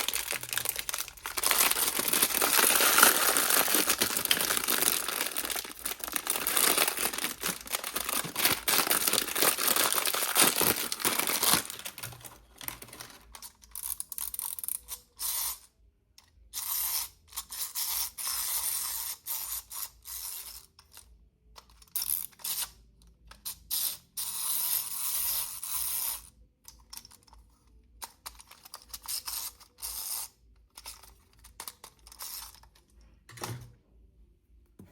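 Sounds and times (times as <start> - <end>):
plastic packaging crinkling: 0.0 - 13.4.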